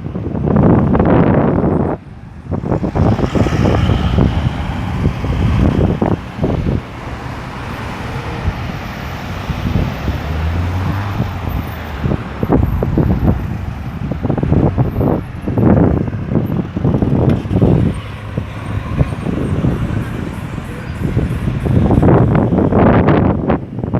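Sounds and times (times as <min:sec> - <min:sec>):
engine hum: 0:00.0 - 0:23.9
tyres on road: 0:00.0 - 0:23.9
vehicles driving past: 0:00.0 - 0:23.9.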